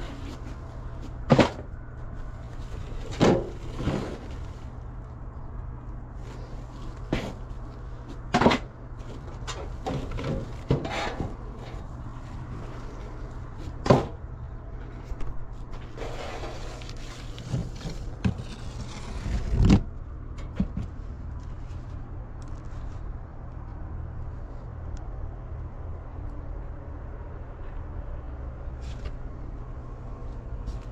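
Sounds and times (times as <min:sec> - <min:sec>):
steady low hum: 0:00.0 - 0:30.9
objects being rummaged and knocked: 0:02.7 - 0:04.5, 0:08.2 - 0:11.9
rustling: 0:14.9 - 0:19.7.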